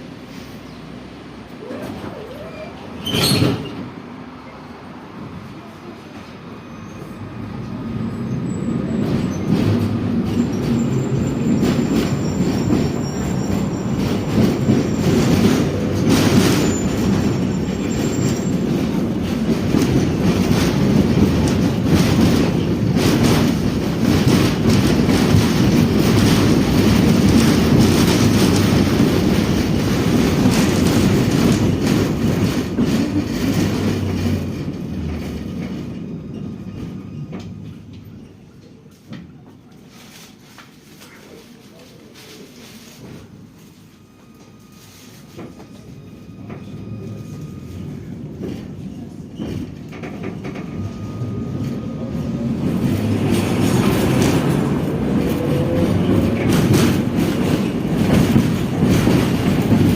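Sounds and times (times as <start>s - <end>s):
tram rumbling along track: 0.0s - 59.9s
rail joint clicks: 8.8s - 39.9s, 45.2s - 59.9s.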